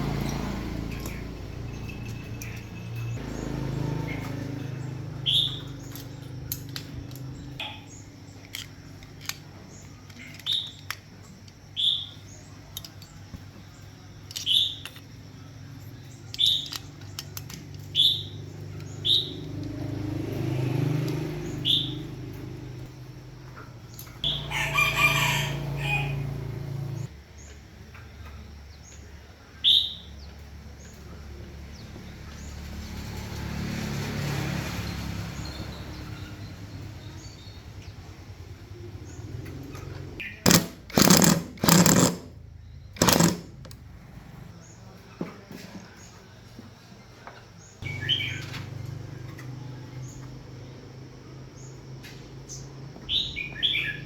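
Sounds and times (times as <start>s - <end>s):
rooster crowing: 24.2s - 27.1s
scattered clicks: 40.5s - 42.4s, 43.0s - 43.8s.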